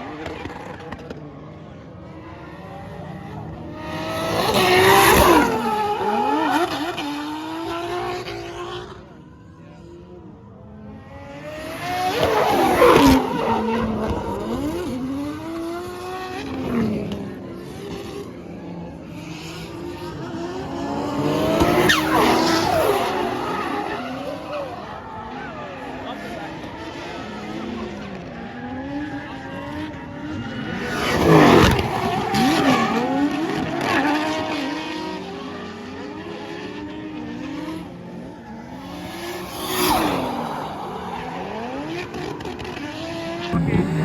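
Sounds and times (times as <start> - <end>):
car engine revving hard: 3.8 - 8.7, 11.5 - 17.4, 19.6 - 25.0, 30.7 - 44.0
tyre squeal: 21.2 - 25.2, 38.4 - 43.0.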